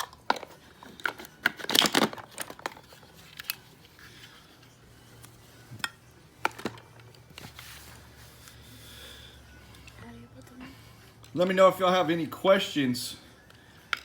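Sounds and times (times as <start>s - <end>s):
crinkling: 0.0s - 8.6s.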